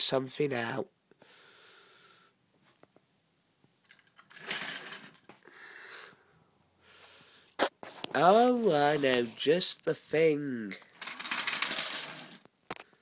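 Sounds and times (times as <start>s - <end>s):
toy train motor whirring: 4.2s - 5.2s, 11.0s - 12.5s.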